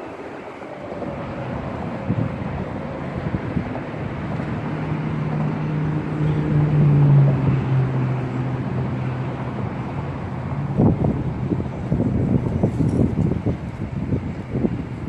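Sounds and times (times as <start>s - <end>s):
motor vehicle passing: 3.2s - 13.1s.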